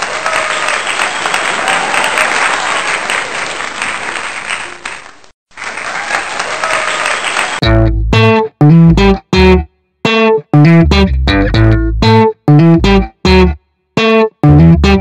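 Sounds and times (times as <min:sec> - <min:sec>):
crowd applauding: 0:00.0 - 0:07.6
people cheering: 0:00.0 - 0:07.6
loud electric guitar music: 0:07.6 - 0:15.0.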